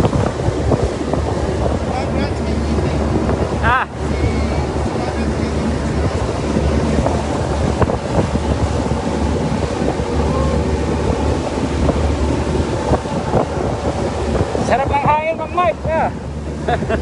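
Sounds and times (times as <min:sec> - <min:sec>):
low engine hum: 0:00.0 - 0:17.0
water washing: 0:00.0 - 0:17.0
wind buffeting microphone: 0:00.0 - 0:17.0.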